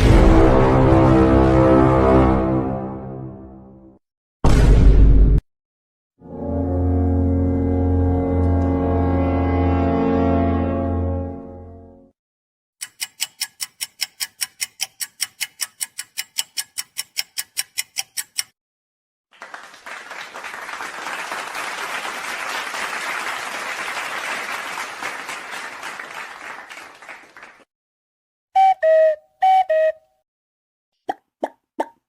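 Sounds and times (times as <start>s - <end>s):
rapid even ticking: 12.8s - 18.6s
crowd applause: 19.3s - 27.7s.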